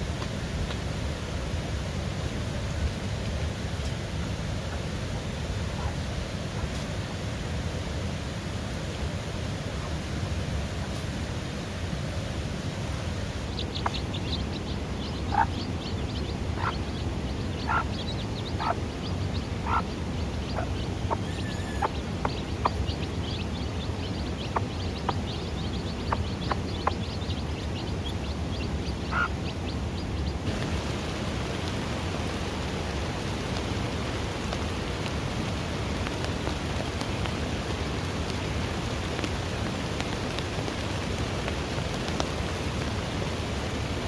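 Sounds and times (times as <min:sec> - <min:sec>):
steady hiss: 0:00.0 - 0:29.4, 0:30.4 - 0:44.0
chicks peeping: 0:13.4 - 0:30.6
adult bird calling: 0:13.5 - 0:27.5, 0:28.6 - 0:29.6.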